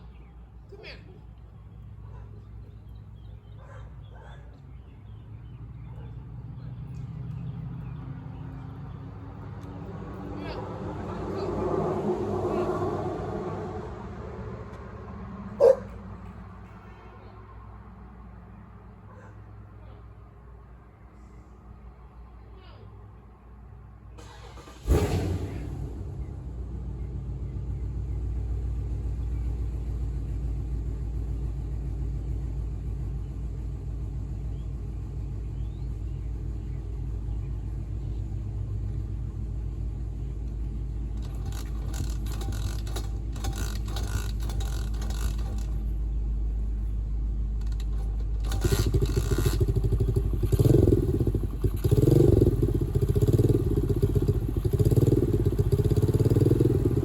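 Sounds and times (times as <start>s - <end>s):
dirt bike engine revving: 24.8s - 26.1s, 41.2s - 45.9s, 47.6s - 57.0s.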